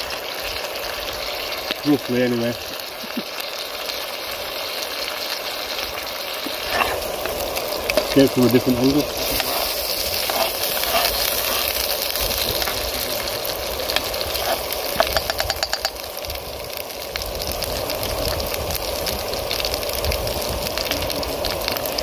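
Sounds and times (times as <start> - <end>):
onions sizzling in a frying pan: 0.0 - 22.0
spatula scraping and tapping pan: 6.4 - 8.2, 9.2 - 12.8, 13.9 - 16.0.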